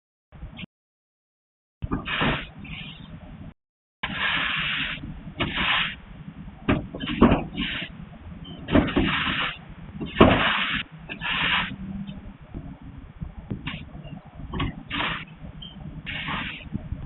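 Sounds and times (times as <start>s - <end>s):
low rumble: 1.8s - 17.0s
scraping strokes: 4.0s - 6.0s, 7.0s - 7.9s, 8.8s - 11.8s, 14.6s - 15.3s, 16.1s - 16.8s.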